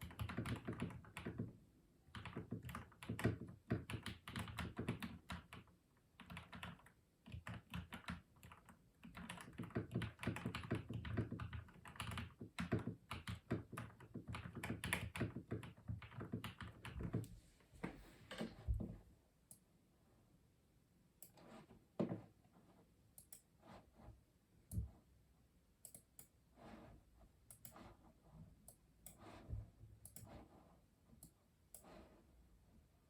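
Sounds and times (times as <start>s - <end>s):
mechanical keyboard typing: 0.0s - 17.3s.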